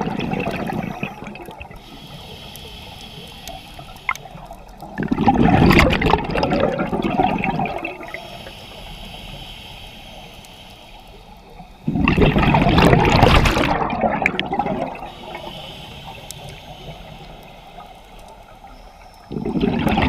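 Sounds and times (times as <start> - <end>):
exhaled bubbles rushing underwater: 0.0 - 1.8, 3.7 - 8.2, 11.5 - 18.0, 18.6 - 20.0
regulator hissing: 0.5 - 5.0, 8.0 - 12.0, 14.9 - 19.4.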